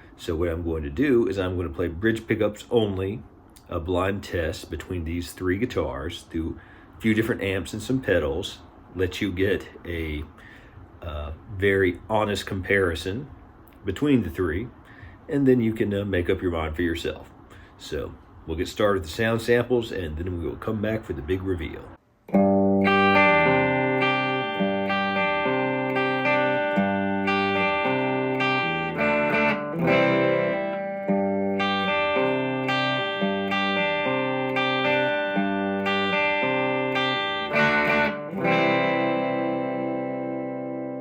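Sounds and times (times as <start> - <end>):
electric guitar strumming chords: 22.3 - 41.0.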